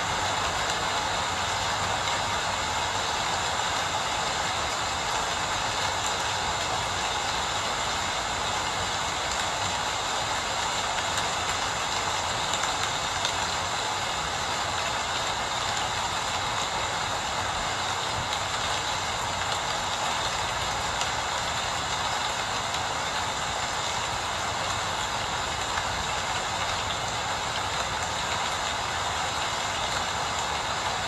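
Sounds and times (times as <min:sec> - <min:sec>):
steady rain hiss: 0:00.0 - 0:31.0.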